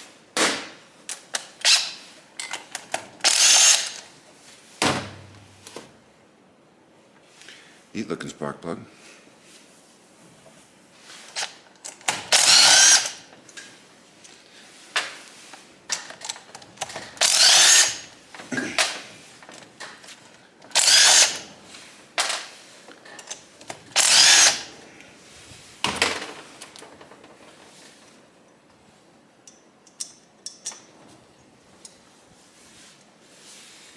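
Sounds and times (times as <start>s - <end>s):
power drill motor whine: 3.3s - 3.9s, 12.3s - 13.2s, 17.2s - 18.1s, 20.8s - 21.5s, 24.0s - 24.7s.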